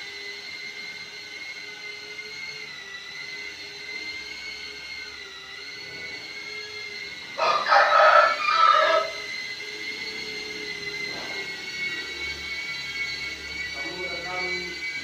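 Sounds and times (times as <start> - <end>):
drone propellers whining: 0.0 - 15.0
rooster crowing: 7.4 - 9.3.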